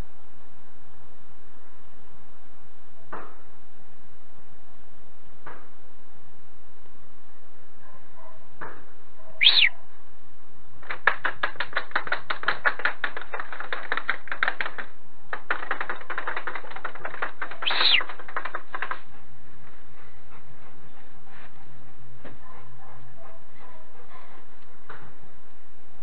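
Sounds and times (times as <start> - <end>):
bird chattering clicks: 9.4 - 9.7, 17.5 - 18.2
bird call rising and falling: 9.4 - 9.8, 17.6 - 18.1.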